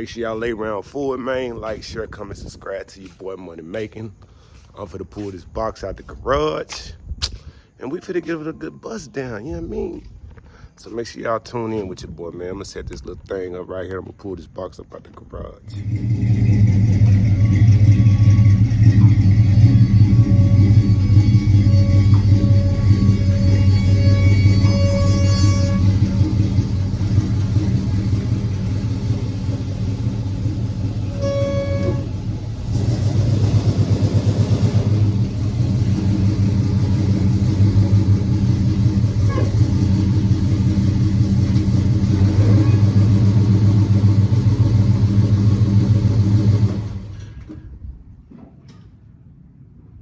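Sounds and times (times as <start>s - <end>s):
car engine rumbling: 15.1s - 48.3s.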